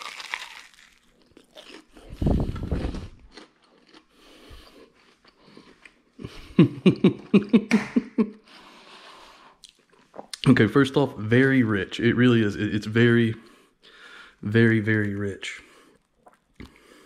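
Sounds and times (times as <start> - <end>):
person chewing sandwich: 0.0 - 7.7.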